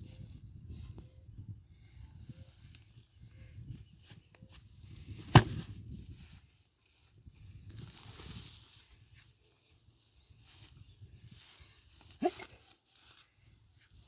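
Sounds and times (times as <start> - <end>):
axe striking wood: 5.3 - 5.6.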